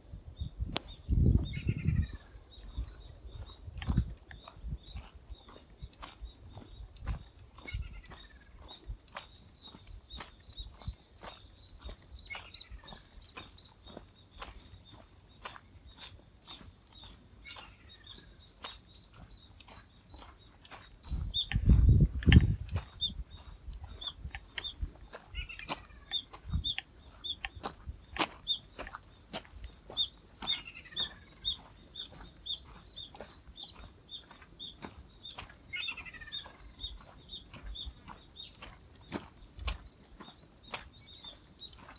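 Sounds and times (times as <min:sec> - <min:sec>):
high insect-like hiss: 0:00.0 - 0:41.9
bird chirping: 0:00.4 - 0:41.9
scattered clicks: 0:21.3 - 0:22.9.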